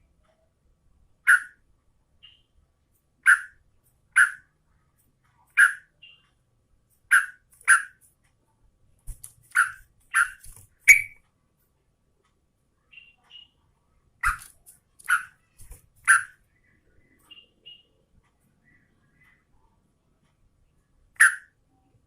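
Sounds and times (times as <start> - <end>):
bird giving sharp calls: 1.3 - 1.6, 3.2 - 4.4, 7.1 - 8.0, 9.5 - 11.2, 14.2 - 16.4, 21.2 - 21.5.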